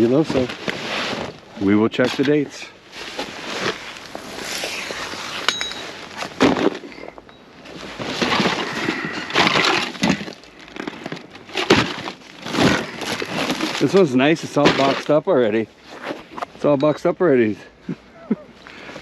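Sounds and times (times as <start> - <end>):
boxes rustling and clattering: 0.0 - 17.1
sharp ringing clink: 5.5 - 6.0.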